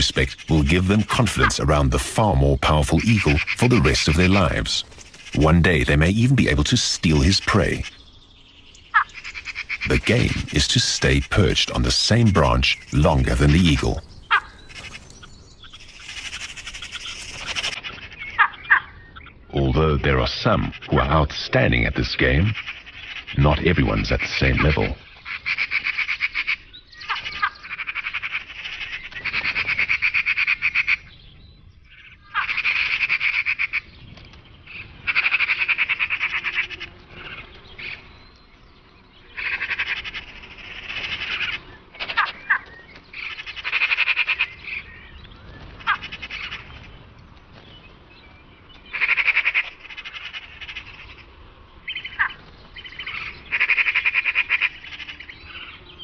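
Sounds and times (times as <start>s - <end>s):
magpies chattering: 0.0s - 56.0s.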